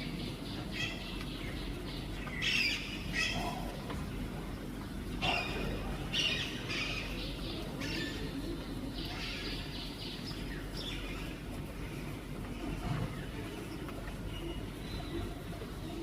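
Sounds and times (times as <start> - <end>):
birds harsh calls: 0.0 - 4.0, 4.8 - 15.4.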